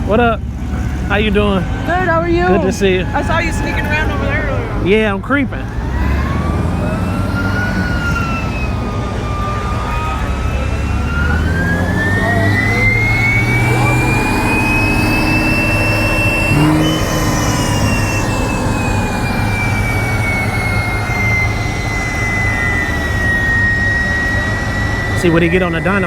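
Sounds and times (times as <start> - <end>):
car engine droning with whine: 0.0 - 26.0.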